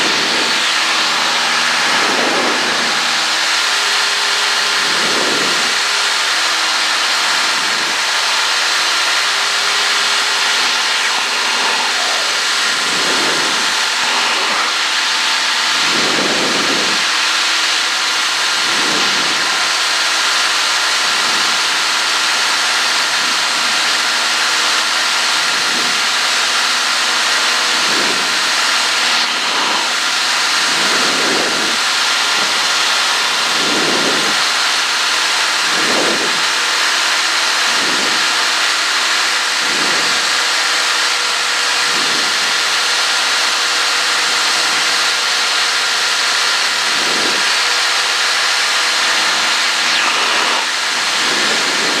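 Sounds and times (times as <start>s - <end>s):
rushing air hiss: 0.0s - 21.7s, 27.7s - 34.7s, 46.7s - 52.0s
airplane engine and propeller: 0.0s - 52.0s.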